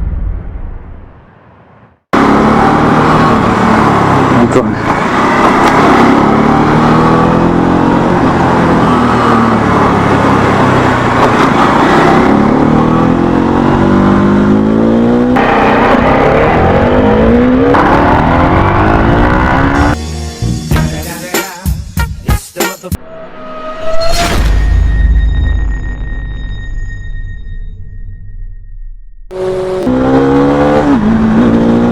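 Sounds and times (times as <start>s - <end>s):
motorcycle engine accelerating: 2.2s - 20.0s, 29.3s - 31.9s.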